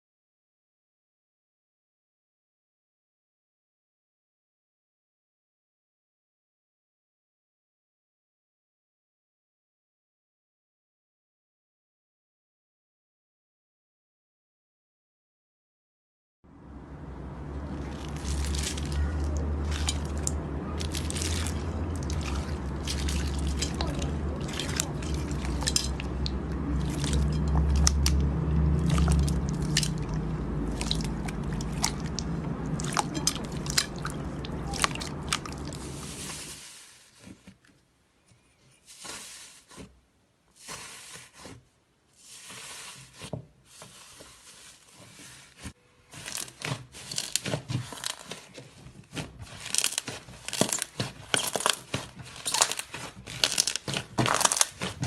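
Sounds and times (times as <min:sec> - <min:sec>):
slime crust crackling: 0:17.6 - 0:28.2, 0:28.8 - 0:37.0, 0:46.2 - 0:55.0.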